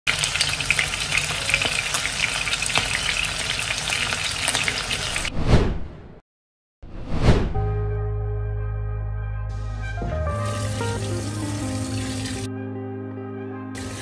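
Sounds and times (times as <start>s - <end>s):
chicken sizzling in a pan: 0.1s - 5.3s, 13.8s - 14.0s
falling whoosh effect: 6.9s - 7.6s.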